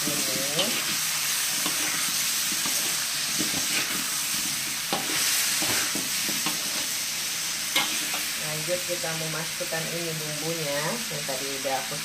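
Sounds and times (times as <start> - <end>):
metal spatula scraping pan: 0.0 - 7.0, 7.7 - 8.4
meat and potatoes sizzling in oil: 0.0 - 12.0.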